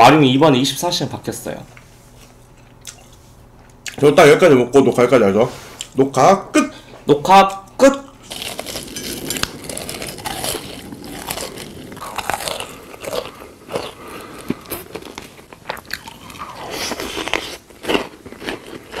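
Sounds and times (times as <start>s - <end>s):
person chewing crunchy food: 8.2s - 19.0s.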